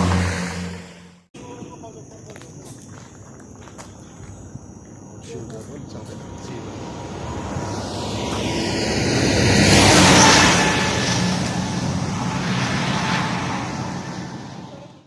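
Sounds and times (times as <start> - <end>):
vehicle passing by: 0.0 - 1.3, 5.6 - 15.0.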